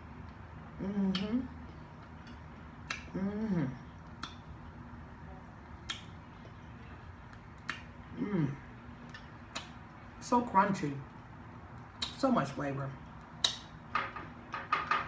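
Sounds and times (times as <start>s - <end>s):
short voiced hums: 0.8s - 1.6s, 3.0s - 4.0s, 8.1s - 8.7s.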